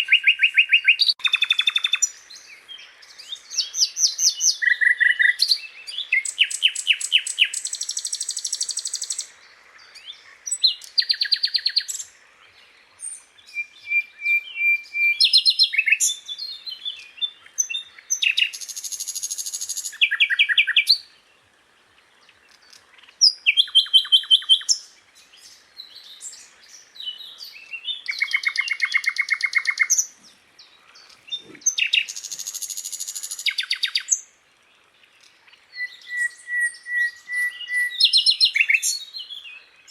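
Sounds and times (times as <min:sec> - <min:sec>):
flycatcher singing: 0:00.0 - 0:09.3.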